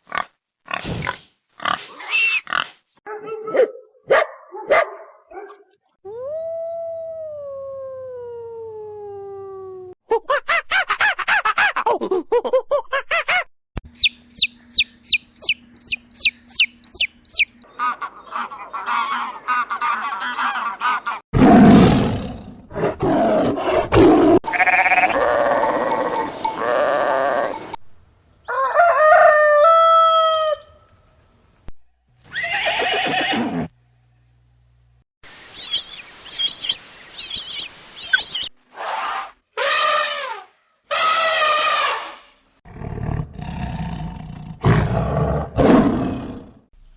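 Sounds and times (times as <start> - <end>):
animals calling: 13.9 - 21.2, 24.4 - 27.8.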